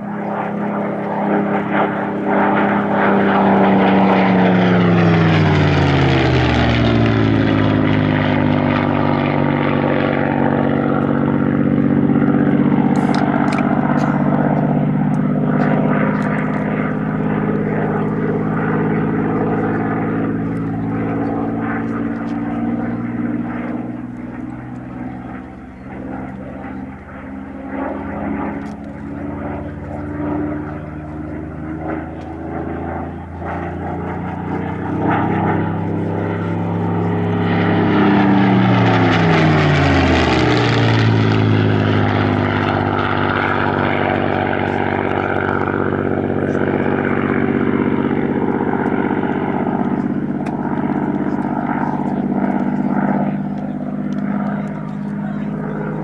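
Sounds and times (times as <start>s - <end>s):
aircraft passing close: 0.0s - 56.0s
propeller aircraft engine drone: 0.0s - 56.0s.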